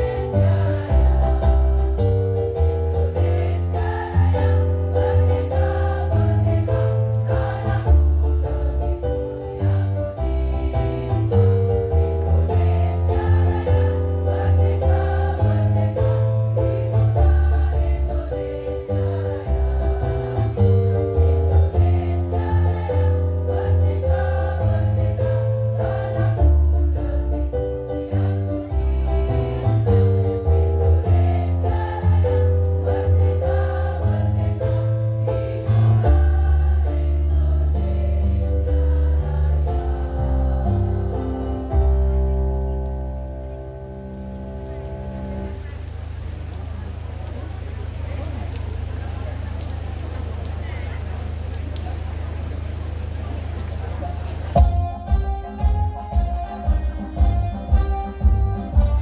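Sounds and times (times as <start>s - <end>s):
women's choir singing: 0.0s - 41.5s
instrumental accompaniment: 54.5s - 59.0s.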